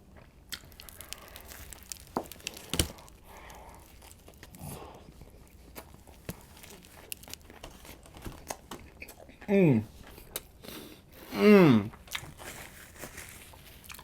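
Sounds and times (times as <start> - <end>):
chewing with wet mouth clicks: 0.2 - 10.6, 11.9 - 12.4, 13.7 - 14.0
paper wrapper crinkling: 0.5 - 8.6, 12.0 - 14.0.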